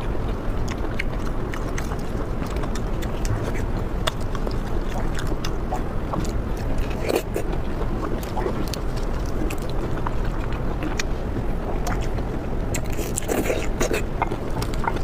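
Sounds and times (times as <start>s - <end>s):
chewing and biting: 0.0s - 15.0s
low background hum: 0.0s - 15.0s.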